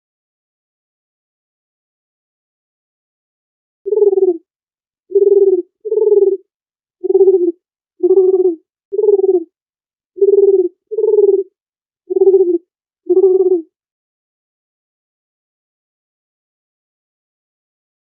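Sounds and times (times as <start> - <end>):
dove cooing: 3.9 - 4.4, 5.1 - 6.4, 7.0 - 9.5, 10.2 - 11.5, 12.1 - 13.7.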